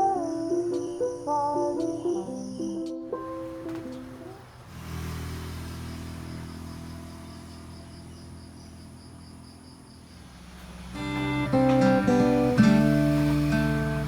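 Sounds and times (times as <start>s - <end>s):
faint high chirping: 0.0s - 4.7s.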